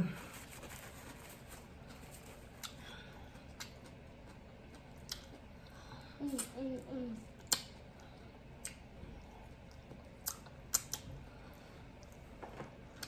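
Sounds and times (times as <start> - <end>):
faint eating clicks: 2.6 - 5.4, 9.5 - 11.1.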